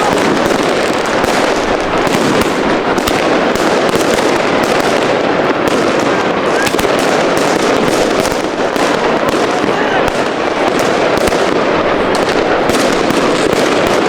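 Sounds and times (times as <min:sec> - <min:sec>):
fireworks and firecrackers banging: 0:00.0 - 0:14.0.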